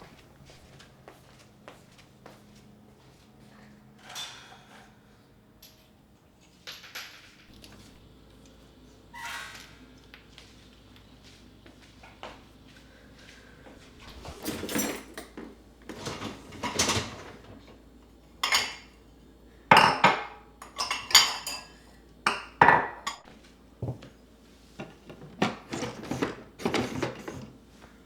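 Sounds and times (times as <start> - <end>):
dishes and cutlery clattering: 18.4 - 19.0, 19.8 - 23.3, 24.8 - 27.5.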